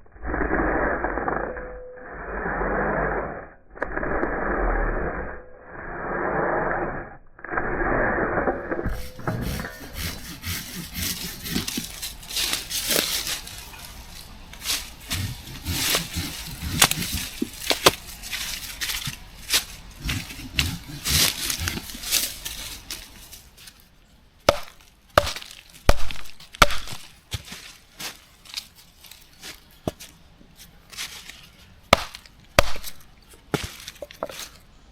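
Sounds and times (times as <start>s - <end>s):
dry wood snapping: 10.2s - 23.8s, 24.5s - 27.5s, 31.2s - 34.2s.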